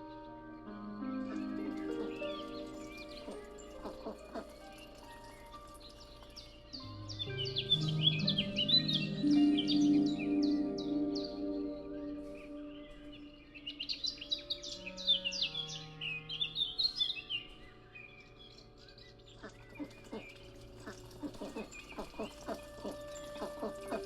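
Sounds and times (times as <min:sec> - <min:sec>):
plucked notes: 0:00.0 - 0:13.7
soft background music: 0:00.0 - 0:24.0
songbird singing: 0:00.0 - 0:24.0.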